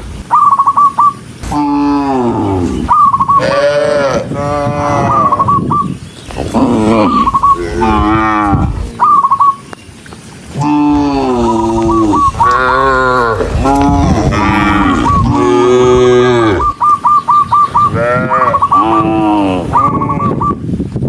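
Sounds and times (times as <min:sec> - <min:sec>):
cattle mooing: 0:01.4 - 0:05.5, 0:06.4 - 0:09.1, 0:10.5 - 0:16.8, 0:17.9 - 0:20.4.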